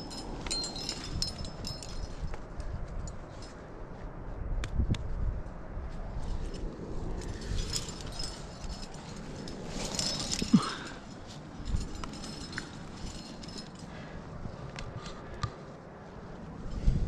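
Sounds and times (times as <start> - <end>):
clothing rustling: 0.0 - 3.6, 6.2 - 14.7
metal climbing gear clinking: 0.0 - 4.0, 6.0 - 17.0.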